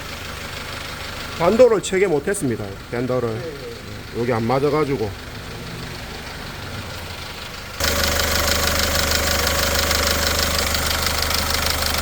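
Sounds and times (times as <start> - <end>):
diesel engine idling: 0.0 - 12.0
fast even rattle: 7.8 - 12.0.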